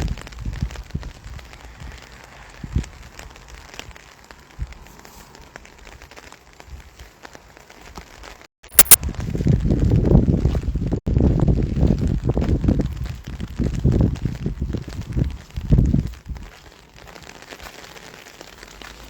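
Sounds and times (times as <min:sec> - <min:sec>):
wind noise on microphone: 0:00.0 - 0:07.2, 0:07.8 - 0:18.8
microphone crackle: 0:00.0 - 0:19.0
rain falling: 0:00.0 - 0:19.0.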